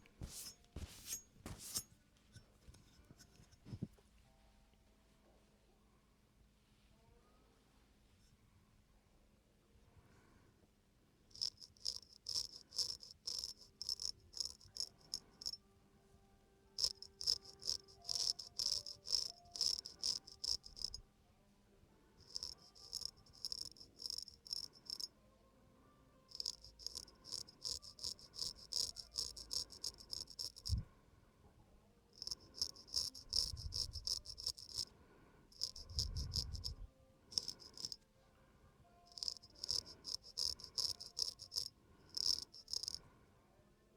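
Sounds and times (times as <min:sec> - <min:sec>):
razor scraping stubble: 0:00.1 - 0:01.9, 0:11.4 - 0:15.6, 0:16.8 - 0:21.0, 0:22.3 - 0:25.1, 0:26.3 - 0:30.8, 0:32.2 - 0:34.8, 0:35.6 - 0:36.8, 0:37.4 - 0:38.0, 0:39.1 - 0:43.0.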